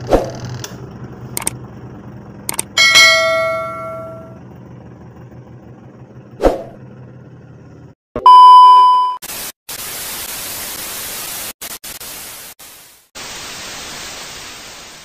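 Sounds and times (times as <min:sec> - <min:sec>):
loud electronic beep: 0:08.2 - 0:09.2
bursts of static hiss: 0:09.2 - 0:15.0.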